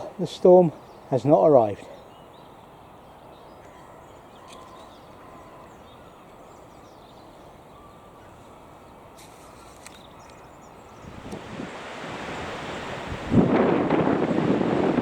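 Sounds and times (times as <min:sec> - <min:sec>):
distant bird calls: 0:00.0 - 0:13.4
wind rushing: 0:11.0 - 0:15.0.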